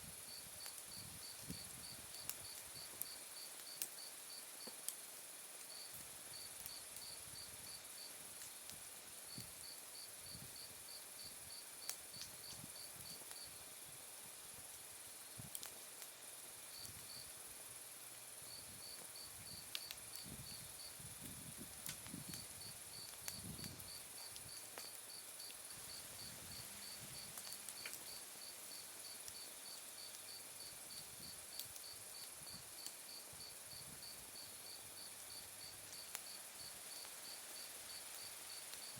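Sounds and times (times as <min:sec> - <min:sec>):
campfire crackling: 0:00.0 - 0:38.9
insect trill: 0:22.3 - 0:31.1
insects chirping: 0:22.3 - 0:38.9.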